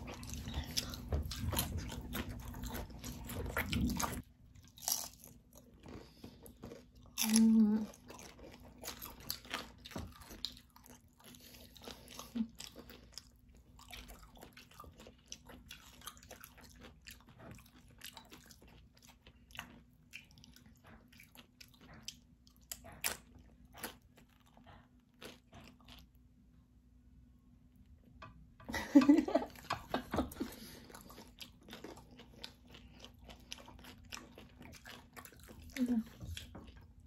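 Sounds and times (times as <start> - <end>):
tortilla chips crunching: 0.4 - 11.2.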